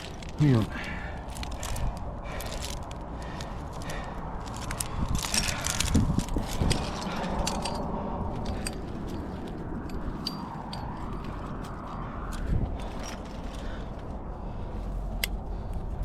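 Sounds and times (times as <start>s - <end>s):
metal climbing gear clinking: 0.0s - 16.0s.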